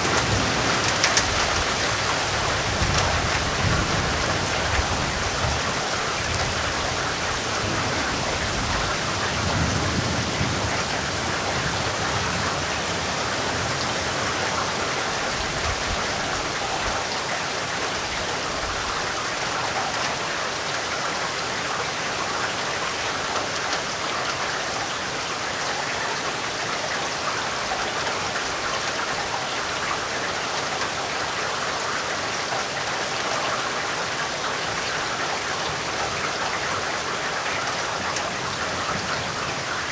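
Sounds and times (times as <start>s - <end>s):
thunder rumbling: 0.0s - 12.8s
heavy rain pattering: 0.0s - 39.9s.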